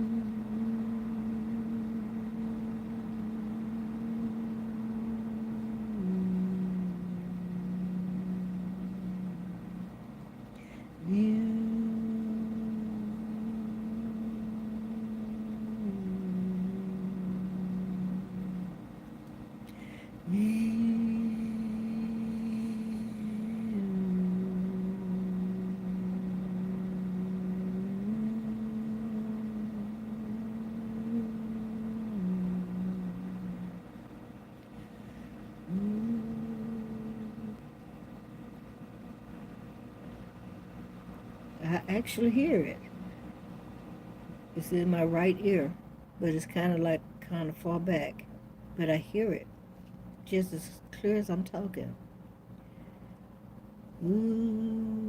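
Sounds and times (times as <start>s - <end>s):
person humming: 0.0s - 38.3s, 53.9s - 55.0s
person breathing: 10.5s - 11.0s, 19.7s - 20.6s.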